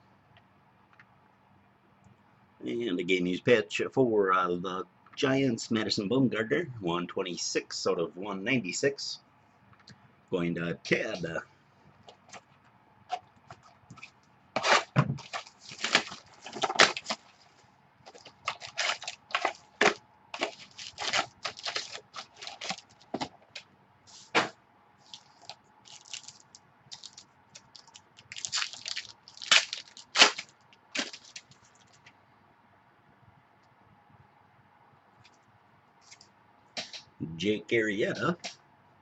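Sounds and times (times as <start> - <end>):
cards and plastic wrapper crackling: 13.5 - 24.4, 25.0 - 32.1.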